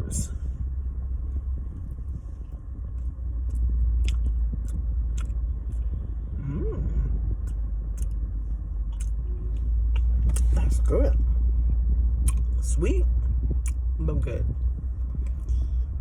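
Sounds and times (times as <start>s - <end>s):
low rumble inside car: 0.0s - 16.0s
biting and chewing doughnut: 1.8s - 6.0s, 6.6s - 10.9s, 12.2s - 12.6s.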